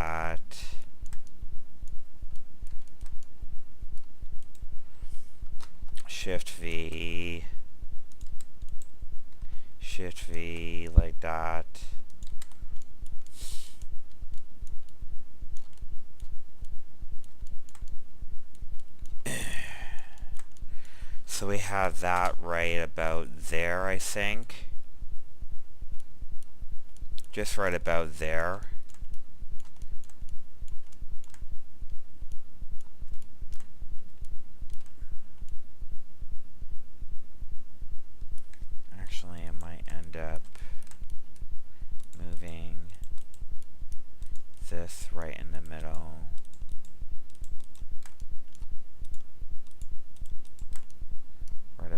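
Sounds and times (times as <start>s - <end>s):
low pulsing hum: 0.0s - 51.9s
keyboard and mouse clicks: 0.8s - 3.3s, 5.4s - 6.1s, 8.1s - 9.4s, 12.0s - 19.2s, 20.2s - 20.6s, 22.0s - 22.4s, 28.5s - 35.6s, 39.4s - 41.4s, 42.0s - 51.6s.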